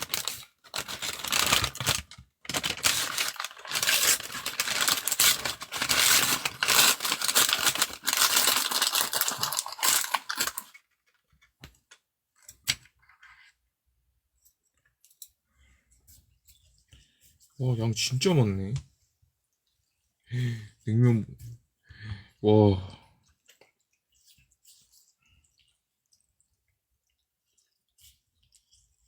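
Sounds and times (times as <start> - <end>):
plastic wrapping crinkling and tearing: 0.0 - 11.2.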